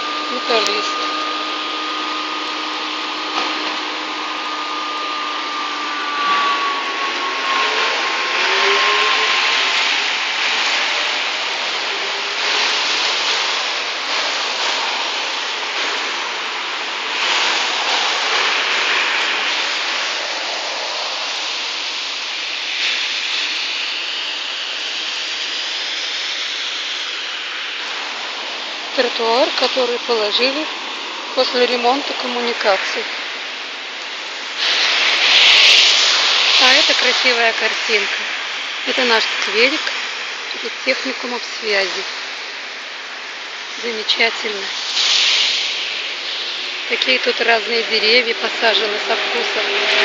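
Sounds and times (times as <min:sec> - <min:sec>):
vehicle whine sliding in pitch: 0:00.0 - 0:13.0, 0:47.4 - 0:50.0
tyres hissing on wet road: 0:00.0 - 0:50.0.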